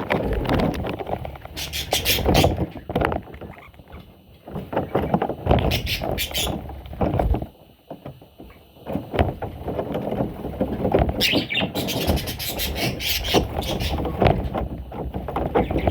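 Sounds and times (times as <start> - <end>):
rumbling knocks: 0.0 - 15.9
bird chicks chirping: 1.5 - 6.8, 11.2 - 14.5, 15.4 - 15.9.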